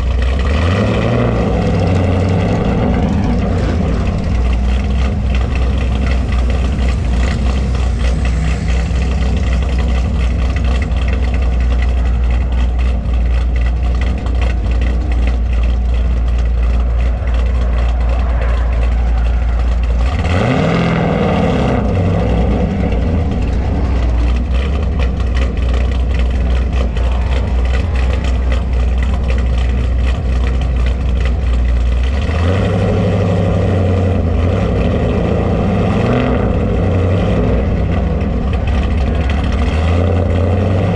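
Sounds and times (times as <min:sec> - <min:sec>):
car engine running: 0:00.0 - 0:40.9.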